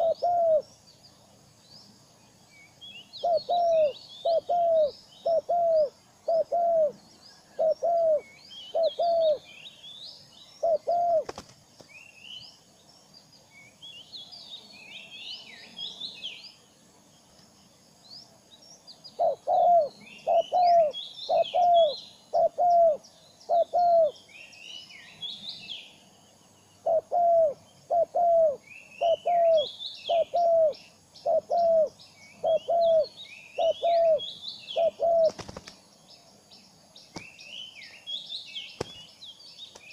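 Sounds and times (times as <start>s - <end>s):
short low bird calls: 3.2s - 9.9s, 19.1s - 24.3s, 26.8s - 35.6s.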